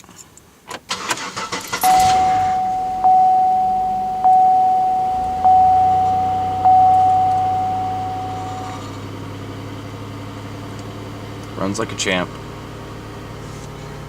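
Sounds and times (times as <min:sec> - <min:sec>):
car engine idling: 0:00.9 - 0:14.0
dashboard warning chime dinging: 0:01.3 - 0:09.1.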